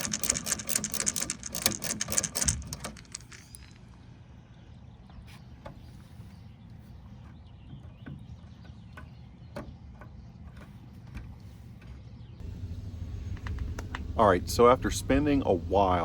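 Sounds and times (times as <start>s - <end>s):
faint clicks and taps: 12.4s - 14.2s
steady low rumble: 12.4s - 16.0s.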